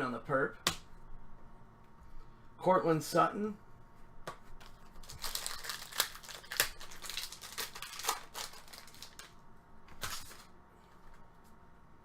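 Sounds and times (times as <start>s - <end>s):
foil wrappers crinkling: 4.7s - 10.6s.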